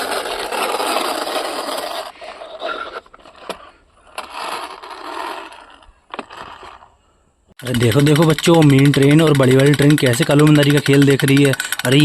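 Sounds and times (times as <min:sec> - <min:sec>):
plastic toy train scraping on ground: 0:00.0 - 0:07.0
sharp clicks: 0:07.6 - 0:12.0.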